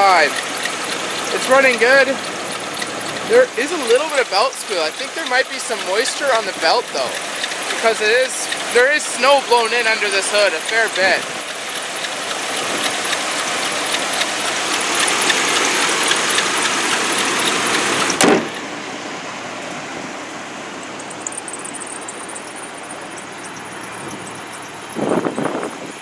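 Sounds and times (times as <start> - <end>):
car engine idling: 0.0 - 26.0
hood slamming shut: 18.1 - 18.7.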